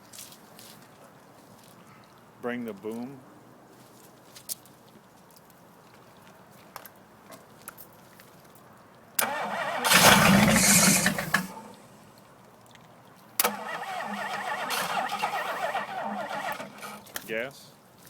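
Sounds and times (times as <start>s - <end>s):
engine cranking by starter: 9.2s - 11.9s, 13.4s - 17.1s.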